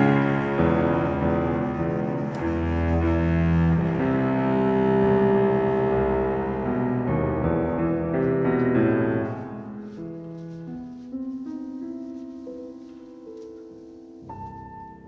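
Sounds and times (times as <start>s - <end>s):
piano music with held notes: 0.0s - 15.0s.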